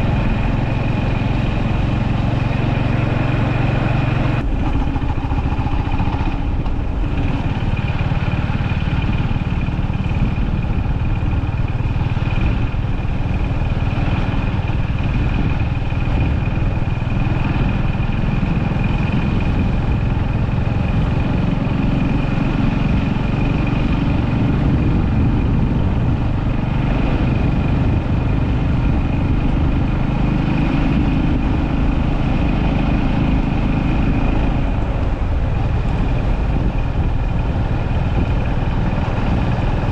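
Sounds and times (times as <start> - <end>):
motorcycle engine thrumming: 0.0 - 22.2.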